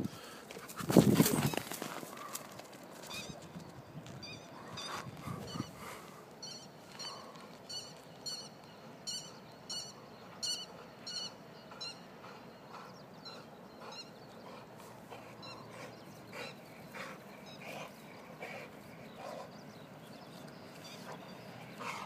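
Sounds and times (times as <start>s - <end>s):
dog breathing: 21.0s - 22.0s.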